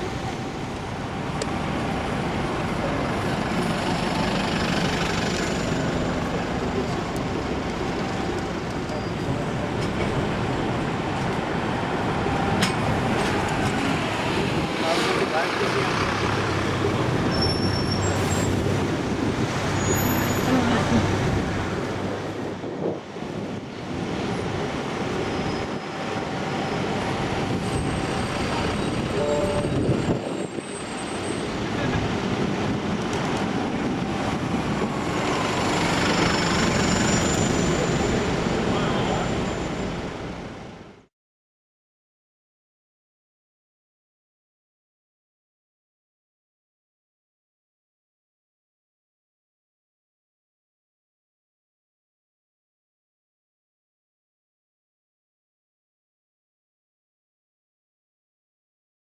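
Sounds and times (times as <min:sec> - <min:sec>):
rumble of buses and trams: 0:00.0 - 0:41.1.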